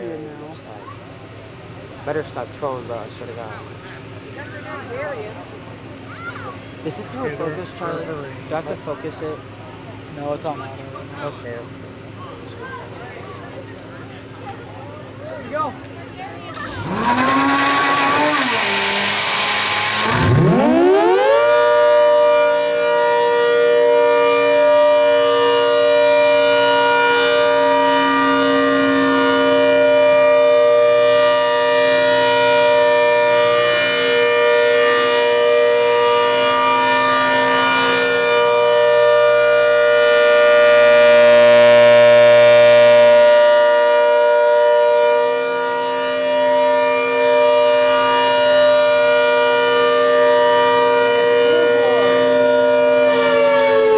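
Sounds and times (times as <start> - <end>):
civil defense siren: 16.6 - 53.9
loud rushing noise: 39.7 - 43.8.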